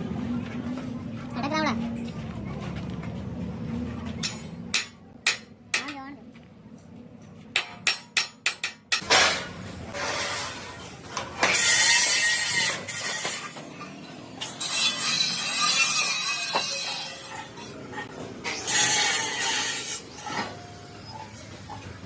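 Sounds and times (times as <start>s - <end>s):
rasping metal scraping: 9.0s - 21.8s.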